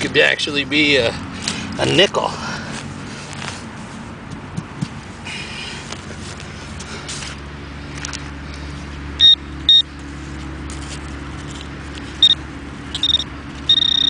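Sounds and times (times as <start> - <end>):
steady low hum: 0.0 - 14.0
pinpointer high electronic beeps: 9.2 - 9.8, 12.2 - 14.0.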